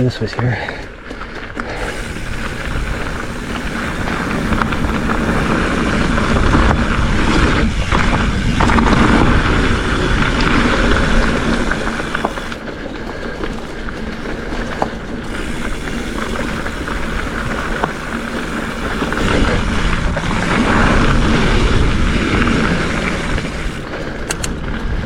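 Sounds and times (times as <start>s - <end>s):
bike tyres on dirt: 0.0s - 25.0s
wind on microphone: 1.7s - 12.6s.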